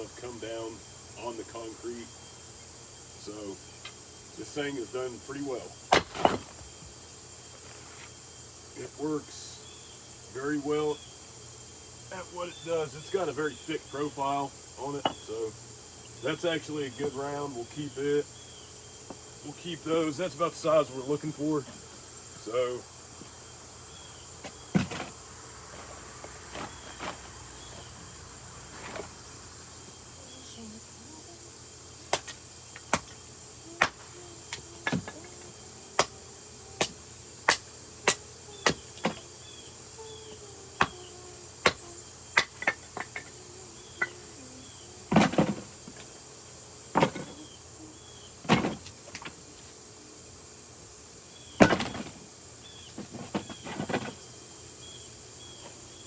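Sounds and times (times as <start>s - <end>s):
axe chopping firewood: 5.9s - 6.6s, 24.7s - 25.2s, 51.6s - 52.2s
heavy wood knocks: 51.6s - 52.2s.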